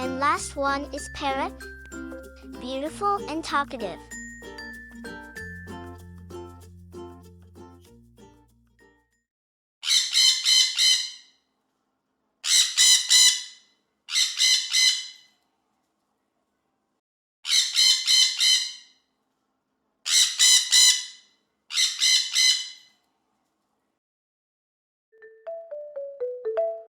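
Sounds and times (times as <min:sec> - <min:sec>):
parrot squawking: 0:09.8 - 0:11.3, 0:12.4 - 0:15.3, 0:17.5 - 0:18.9, 0:20.1 - 0:22.9.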